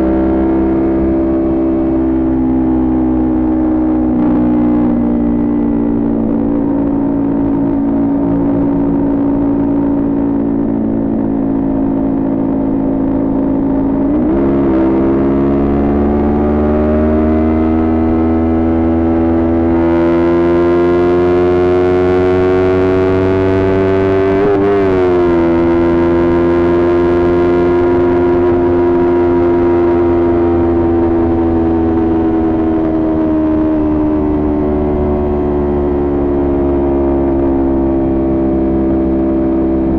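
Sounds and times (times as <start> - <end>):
motorcycle engine under way: 0.0 - 39.9.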